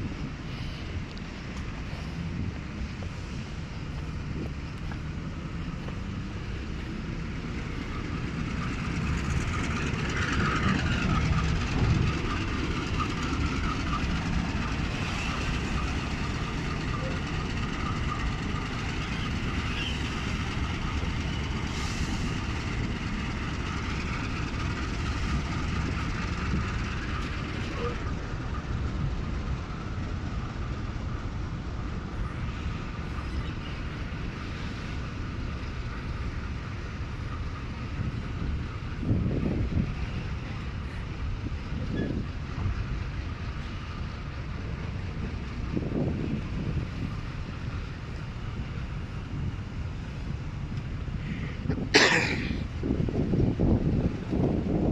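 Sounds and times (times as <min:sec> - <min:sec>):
train rumbling along track: 0:00.0 - 0:54.9
wind buffeting microphone: 0:00.0 - 0:54.9.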